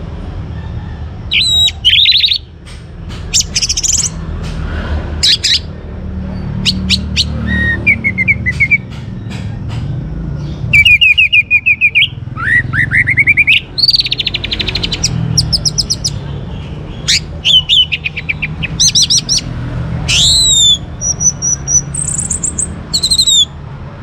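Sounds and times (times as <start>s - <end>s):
thrush singing: 10.7s - 23.6s.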